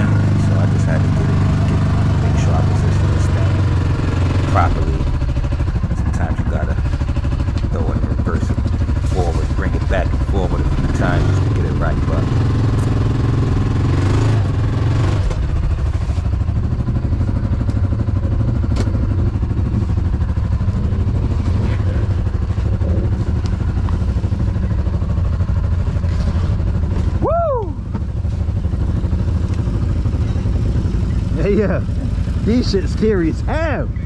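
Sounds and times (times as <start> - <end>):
vehicle engine rumbling: 0.0 - 34.0
rising and falling tone: 27.0 - 28.1.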